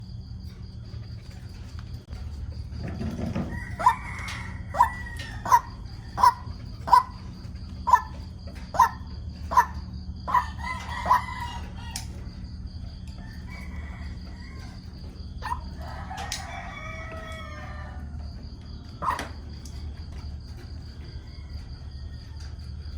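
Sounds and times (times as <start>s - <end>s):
steady low hum: 0.0s - 22.9s
waterhen calling: 3.6s - 11.7s, 15.4s - 15.8s, 19.0s - 19.4s.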